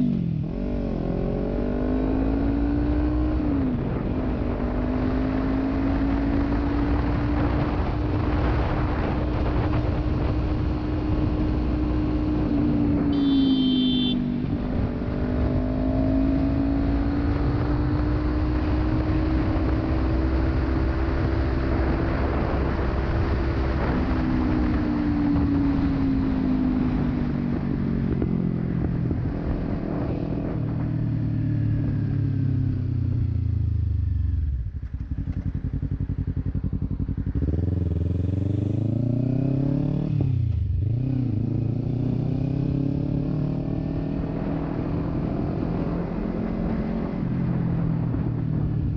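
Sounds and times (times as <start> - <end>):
motorcycle engine riding: 0.0 - 48.9
short high beep: 13.1 - 14.3.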